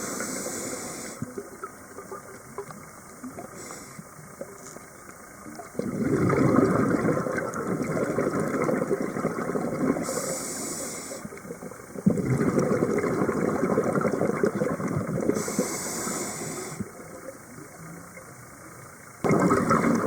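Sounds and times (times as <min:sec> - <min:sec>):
regulator inhalation hiss: 0:00.0 - 0:01.3, 0:03.5 - 0:04.1, 0:10.0 - 0:11.3, 0:15.3 - 0:16.9
bubbles gurgling underwater: 0:05.5 - 0:10.3, 0:11.3 - 0:15.8, 0:19.2 - 0:20.0.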